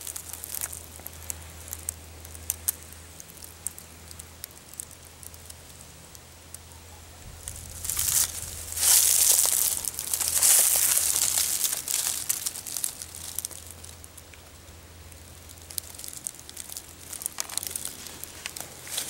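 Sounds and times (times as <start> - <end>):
rustling and crackling: 0.0 - 5.8, 6.5 - 19.0.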